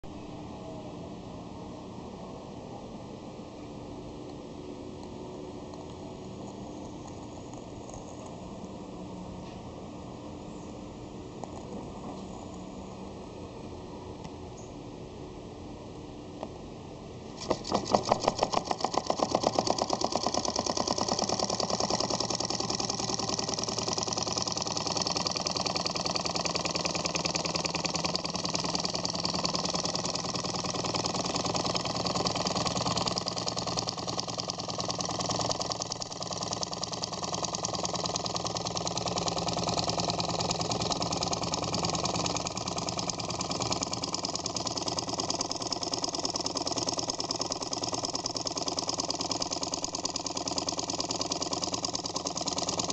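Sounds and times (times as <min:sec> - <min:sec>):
stirling engine clattering: 0:17.4 - 0:52.9.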